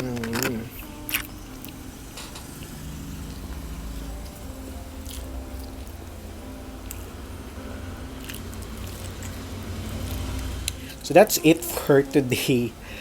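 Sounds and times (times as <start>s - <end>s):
person chewing food: 0.0s - 1.9s, 3.5s - 6.1s, 6.8s - 7.2s, 8.1s - 11.0s
steady low hum: 0.0s - 13.0s.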